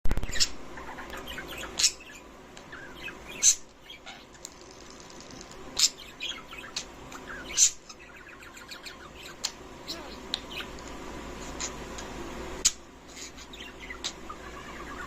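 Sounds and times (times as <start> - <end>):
budgerigars chirping: 0.2 - 4.3, 5.8 - 10.8, 12.6 - 15.0
soft bird twittering: 0.2 - 10.8, 12.6 - 15.0.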